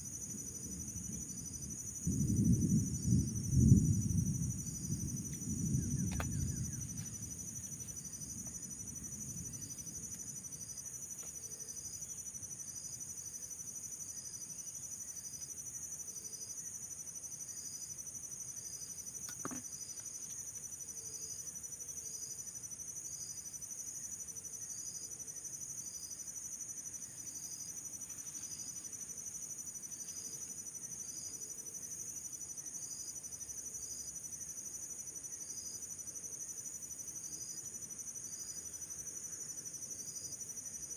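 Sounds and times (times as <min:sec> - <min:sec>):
high-pitched insect chorus: 0:00.0 - 0:40.9
single click: 0:06.1 - 0:06.4.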